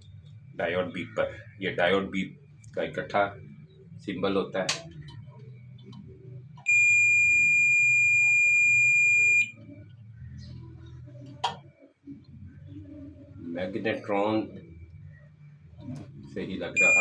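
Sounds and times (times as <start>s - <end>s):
multimeter continuity beep: 6.6s - 9.6s, 16.7s - 17.0s.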